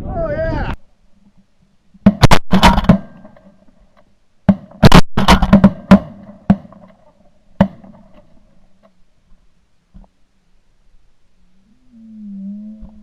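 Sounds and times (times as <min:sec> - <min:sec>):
shotgun shots: 0:02.1 - 0:03.3, 0:04.5 - 0:06.8.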